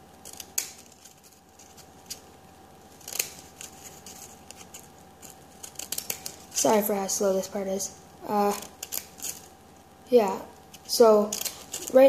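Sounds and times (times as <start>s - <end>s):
scissors cutting card: 3.0s - 6.8s, 8.5s - 9.4s.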